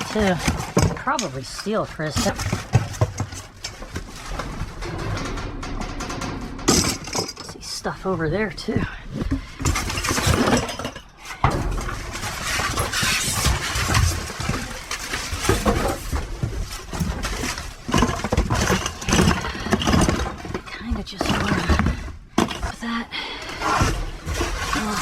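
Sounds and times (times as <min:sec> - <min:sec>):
trash rustling: 0:00.0 - 0:22.8
objects knocking and clattering: 0:00.0 - 0:25.0
steady low rumble: 0:03.5 - 0:10.0.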